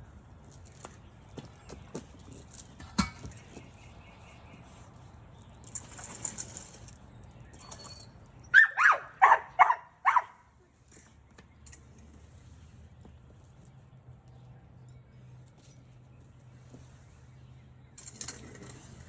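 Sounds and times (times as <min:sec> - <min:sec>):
dog barking: 0:08.6 - 0:10.4.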